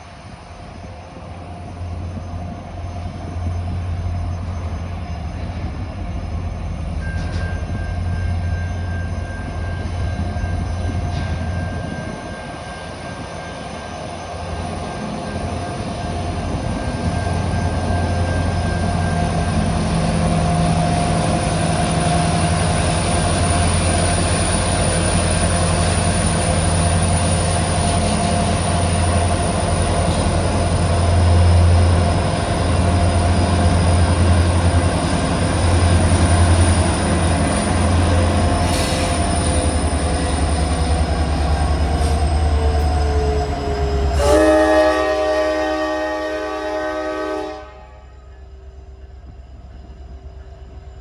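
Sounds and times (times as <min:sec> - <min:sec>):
diesel locomotive engine hum: 0:00.0 - 0:51.0
train air horn chord: 0:44.2 - 0:48.2.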